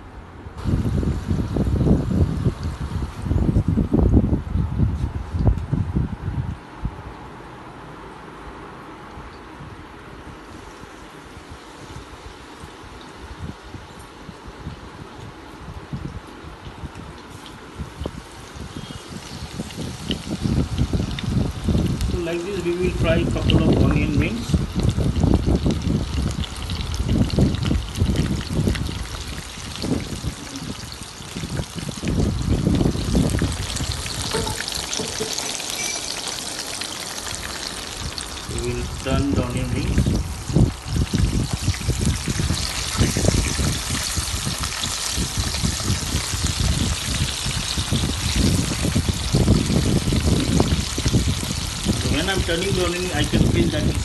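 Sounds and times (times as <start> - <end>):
onion rings frying in oil: 0.6 - 4.1, 10.4 - 54.0.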